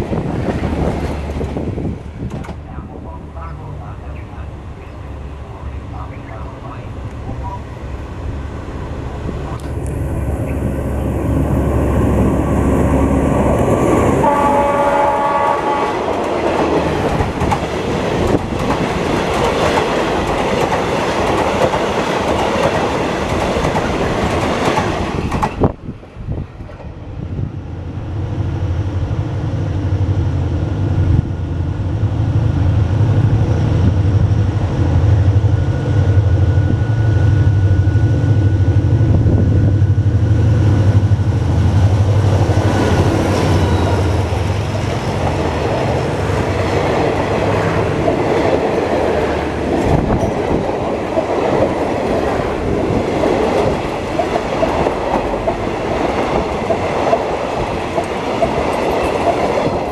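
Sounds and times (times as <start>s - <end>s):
diesel locomotive engine: 0.0s - 59.9s
multi-tone train horn blast: 14.1s - 16.2s
train coaches clattering over rail joints: 49.6s - 59.9s.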